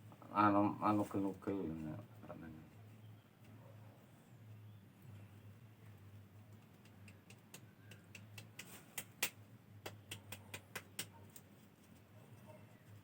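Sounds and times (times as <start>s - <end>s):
light irregular clicks and taps: 5.8s - 12.0s.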